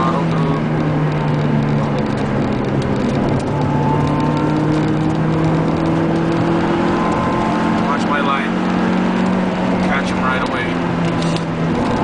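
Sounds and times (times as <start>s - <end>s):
car engine running: 0.0s - 12.0s
road noise: 0.0s - 12.0s.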